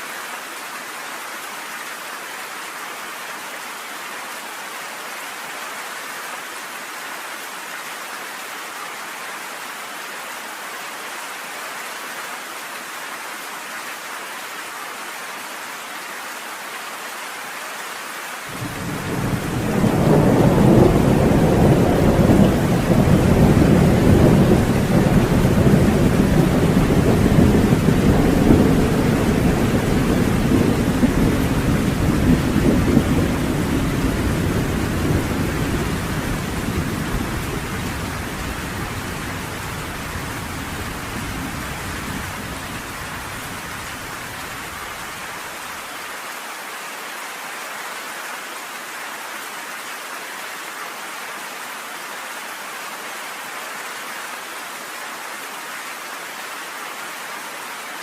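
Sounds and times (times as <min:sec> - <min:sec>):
heavy rain: 0:00.0 - 0:58.0
thunder rumbling: 0:18.6 - 0:45.1.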